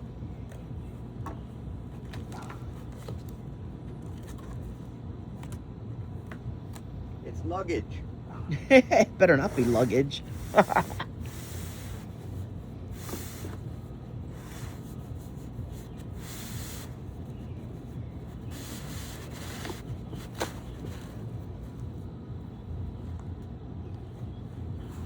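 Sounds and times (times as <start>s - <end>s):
packaging rustling and scraping: 18.3s - 21.9s.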